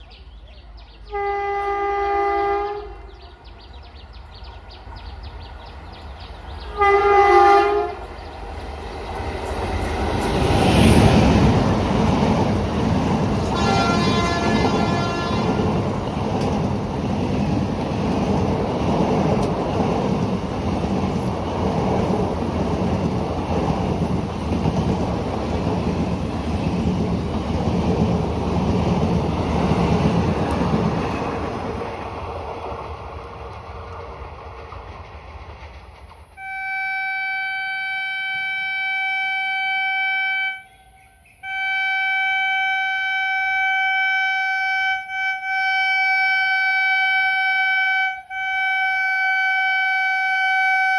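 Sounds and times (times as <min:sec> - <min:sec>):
train rumbling and wheel clatter: 0:00.0 - 0:39.0
train horn: 0:01.0 - 0:03.5, 0:06.6 - 0:08.2, 0:13.4 - 0:16.0, 0:36.4 - 0:50.9.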